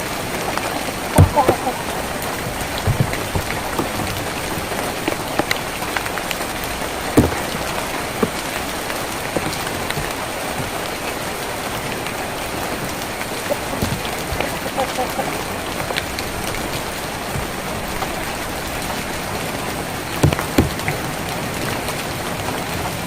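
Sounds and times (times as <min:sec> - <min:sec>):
rain on a tin roof: 0:00.0 - 0:23.0.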